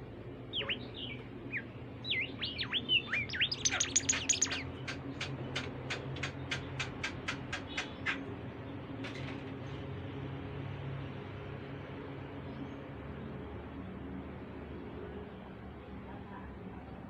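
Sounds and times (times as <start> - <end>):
songbird singing: 0.2 - 6.9.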